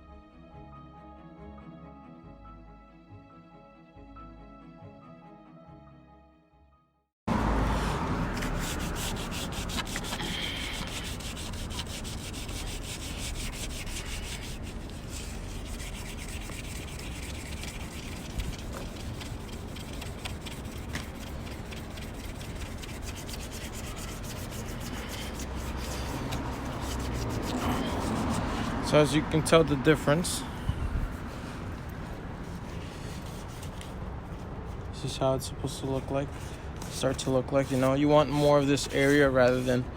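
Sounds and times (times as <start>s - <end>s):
sandpaper rubbing on metal: 7.8s - 29.0s, 36.9s - 39.8s.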